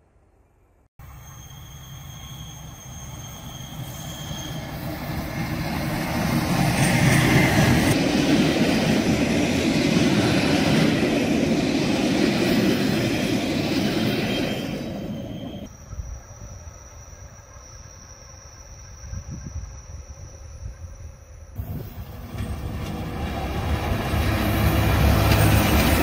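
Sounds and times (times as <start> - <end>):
thin high squealing tones: 1.0 - 5.7, 14.3 - 21.9
train wheels rumbling on rails: 2.5 - 15.7, 21.6 - 26.0.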